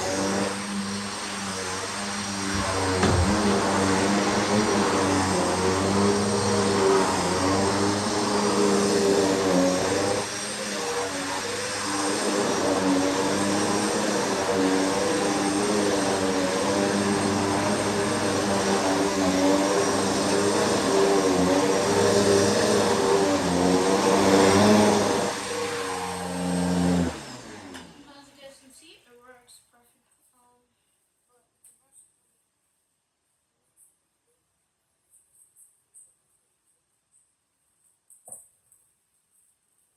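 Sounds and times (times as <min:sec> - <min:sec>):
vacuum cleaner running: 0:00.0 - 0:28.5.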